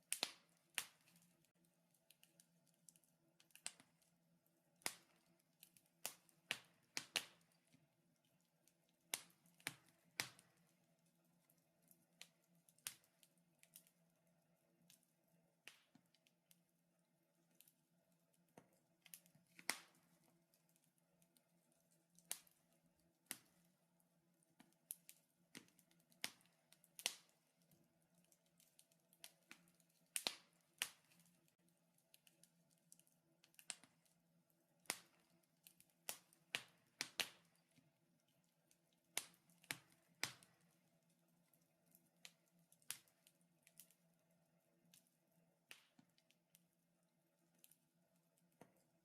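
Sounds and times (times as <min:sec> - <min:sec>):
wood fire crackling: 0:00.0 - 0:16.7, 0:17.3 - 0:46.7.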